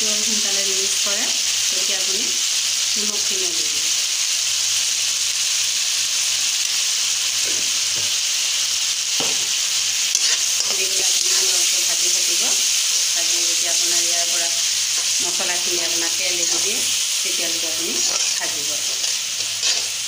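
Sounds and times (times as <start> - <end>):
tomatoes sizzling in oil: 0.0 - 20.0
metal spoon scraping pan: 9.2 - 12.7, 18.0 - 20.0.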